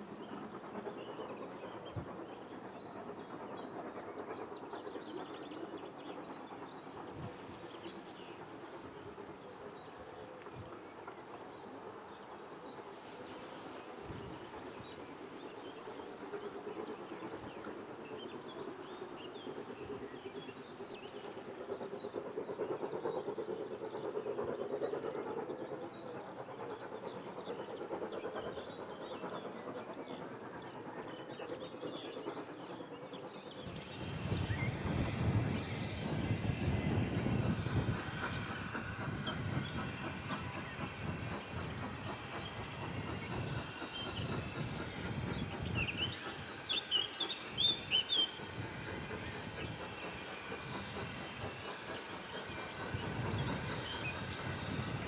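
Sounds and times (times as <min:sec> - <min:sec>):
steam train rumbling: 0:00.0 - 0:55.0.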